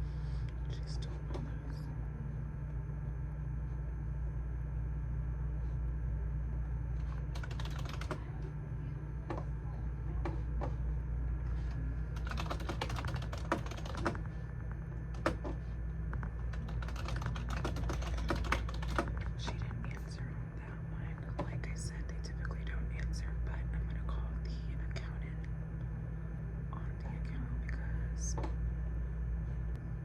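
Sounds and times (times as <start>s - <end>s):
steady low hum: 0.0s - 30.0s
computer keyboard typing: 7.0s - 8.4s, 12.1s - 14.3s, 16.3s - 19.7s.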